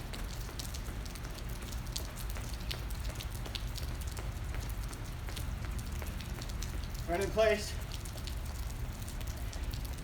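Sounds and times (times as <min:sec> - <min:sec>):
rain pattering: 0:00.0 - 0:10.0.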